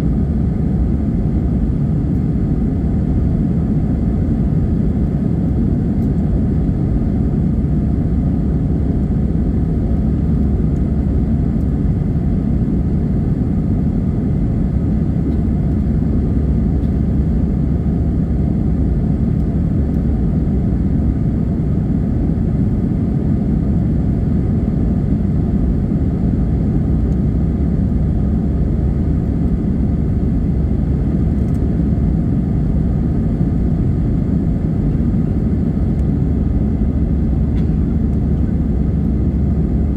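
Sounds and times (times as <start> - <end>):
jet engines low rumble: 0.0 - 39.9.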